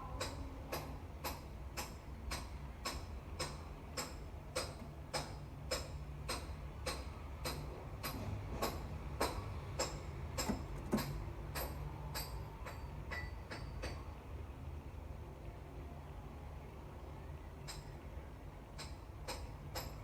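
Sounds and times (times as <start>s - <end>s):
metallic ticks with ringing: 0.1s - 14.1s, 17.6s - 18.0s, 18.7s - 20.0s.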